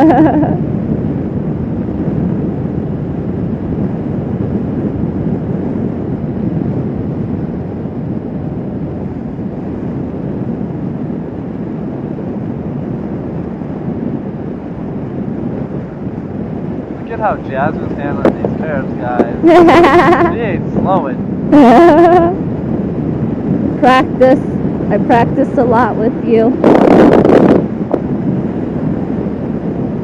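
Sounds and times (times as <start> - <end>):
wind rush: 0.0 - 30.0.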